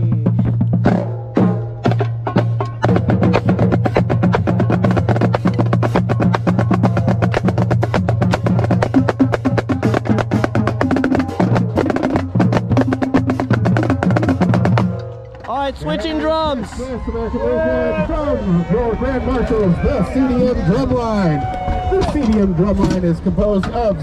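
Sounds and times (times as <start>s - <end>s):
deep drum hits: 0.0s - 15.7s
snare drum strokes and rolls: 0.3s - 15.1s.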